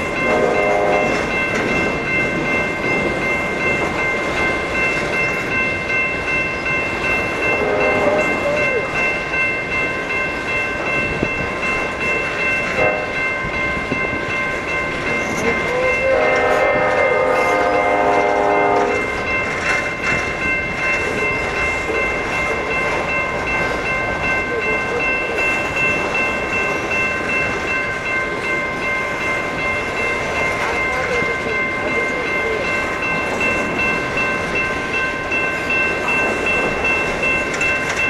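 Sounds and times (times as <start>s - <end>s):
freight train rail noise: 0.0s - 38.0s
train horn: 0.2s - 1.3s, 7.5s - 8.8s, 12.7s - 13.2s, 15.6s - 19.1s.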